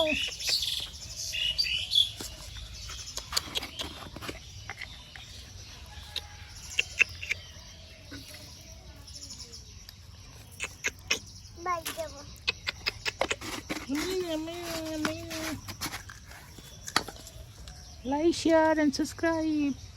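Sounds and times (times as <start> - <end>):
small birds chirping: 0.0 - 19.9
sharp clicks: 10.6 - 13.8.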